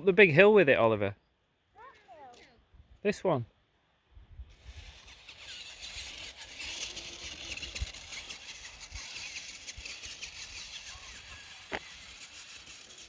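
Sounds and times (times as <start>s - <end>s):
small electric motor whirring: 4.4s - 13.0s.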